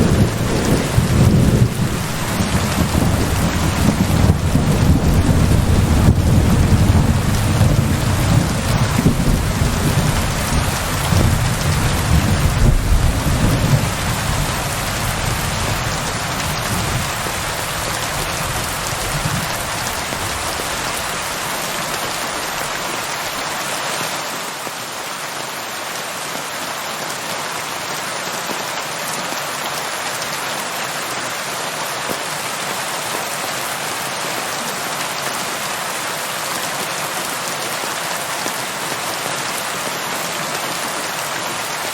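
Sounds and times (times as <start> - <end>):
low rumble of thunder: 0.0 - 20.7
steady rain falling: 0.0 - 41.9.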